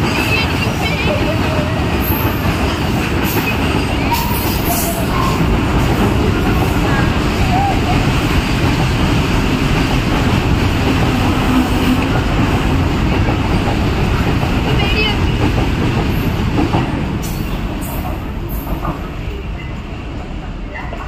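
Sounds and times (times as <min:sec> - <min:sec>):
freight train rumbling past: 0:00.0 - 0:21.0.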